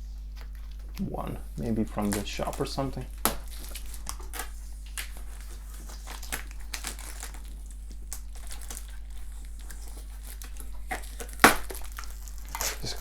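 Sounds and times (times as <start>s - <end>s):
crinkling rustles: 0.0s - 13.0s
packing tape peeling and tearing: 1.6s - 13.0s.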